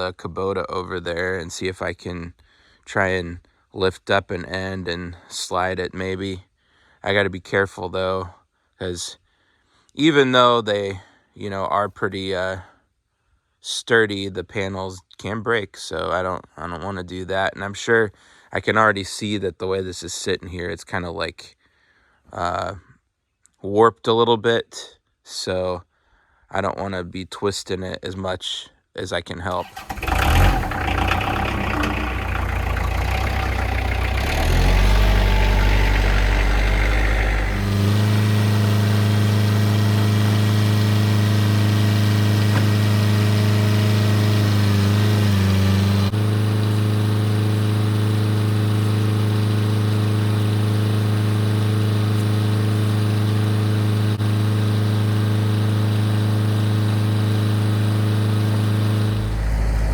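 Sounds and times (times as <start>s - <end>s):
tractor diesel engine running: 29.6s - 59.9s.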